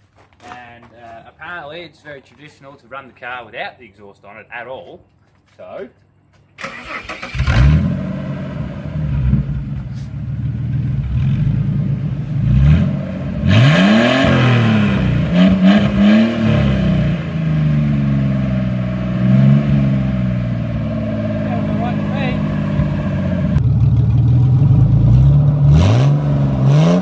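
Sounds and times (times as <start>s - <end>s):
loud car engine revving: 7.2s - 27.0s.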